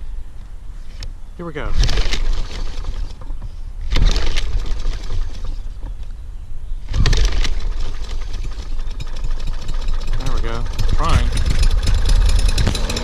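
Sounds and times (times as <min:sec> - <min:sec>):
lawn mower engine cranking and coughing: 0:01.7 - 0:05.9, 0:06.9 - 0:13.0.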